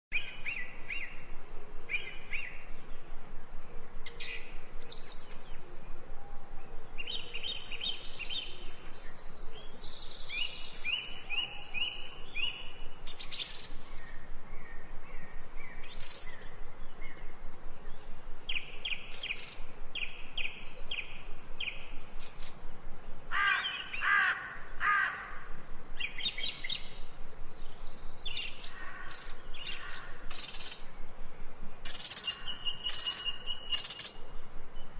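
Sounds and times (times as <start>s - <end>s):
songbirds chirping: 0.1s - 34.9s.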